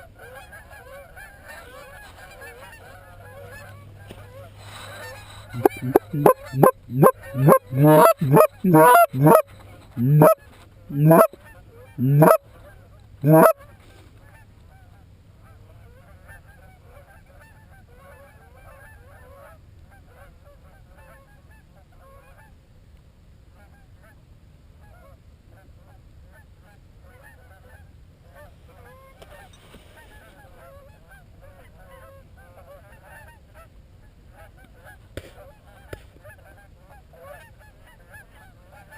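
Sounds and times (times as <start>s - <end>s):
goose clucks: 4.6s - 11.4s, 12.0s - 12.4s, 13.2s - 13.6s
goose honks: 4.7s - 11.4s, 12.0s - 12.4s, 13.2s - 13.6s.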